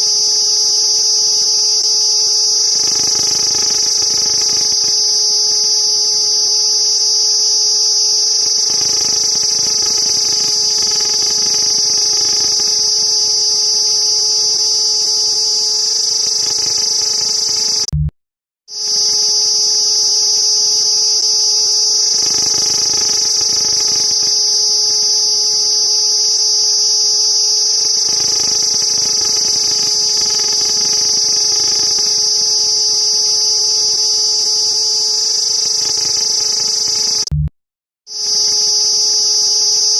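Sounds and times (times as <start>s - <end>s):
cicadas buzzing: 0.0s - 17.9s, 18.8s - 37.2s, 38.2s - 39.9s.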